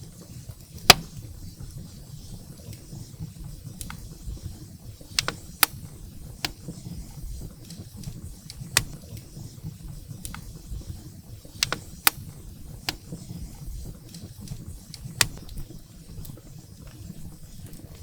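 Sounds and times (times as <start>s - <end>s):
firewood crackling: 0.3s - 18.0s
sharp pops: 0.8s - 1.4s, 5.1s - 9.3s, 11.4s - 15.6s.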